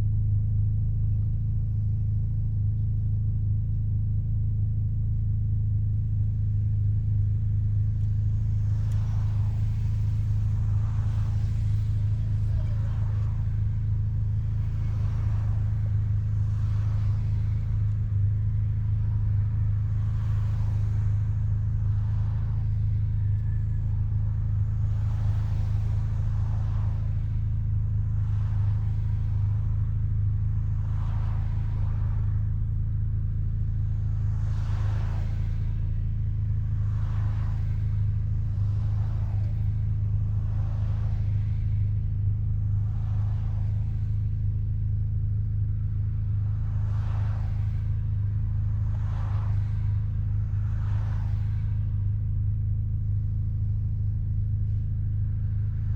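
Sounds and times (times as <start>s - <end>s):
rotary engine exhaust drone: 0.0s - 55.9s
soft rushing air: 6.2s - 55.9s.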